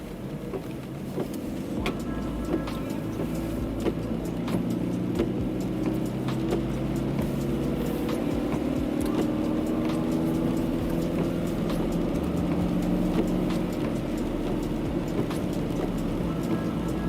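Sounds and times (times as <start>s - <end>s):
car engine drone: 0.0s - 17.0s
light ticks: 0.0s - 17.0s
tyres hissing on wet road: 0.0s - 17.0s.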